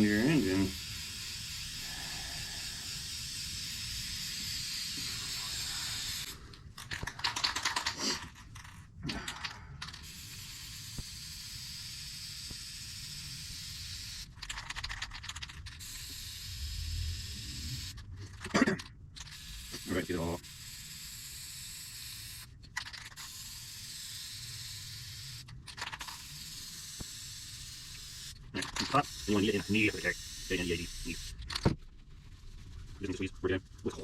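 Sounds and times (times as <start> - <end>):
aerosol can spraying: 0.0 - 6.4, 10.0 - 14.3, 15.7 - 18.0, 26.0 - 31.3
fast clicking rattle: 3.0 - 10.6, 14.3 - 16.2, 25.5 - 32.6.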